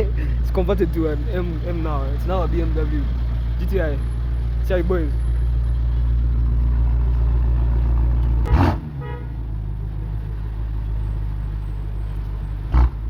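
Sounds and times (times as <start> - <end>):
car engines idling: 0.0 - 13.0
car horn toot: 8.4 - 9.5.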